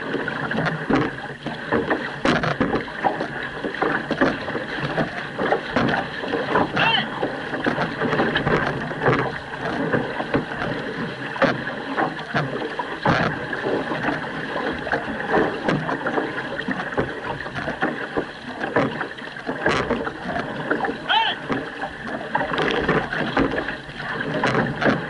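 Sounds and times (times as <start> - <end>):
canoe paddles splashing in water: 0.0 - 25.0
water rushing along hull: 0.0 - 25.0.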